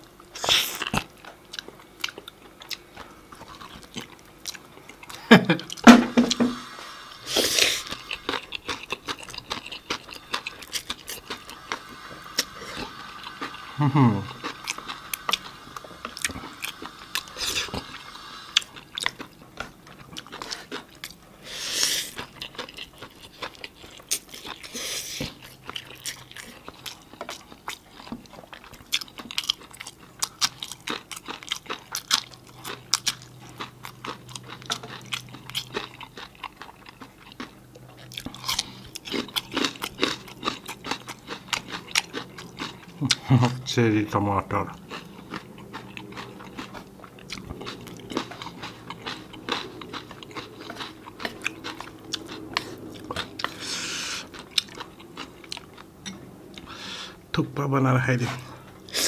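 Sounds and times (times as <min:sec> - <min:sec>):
chewing with mouth clicks: 0:00.0 - 0:05.9, 0:07.3 - 0:56.8
short hissing rushes: 0:06.6 - 0:08.0.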